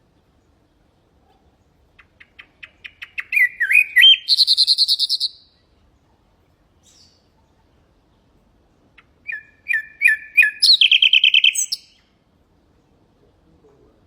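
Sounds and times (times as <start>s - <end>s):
nightingale singing: 1.6s - 5.8s, 6.8s - 8.3s, 8.9s - 12.2s.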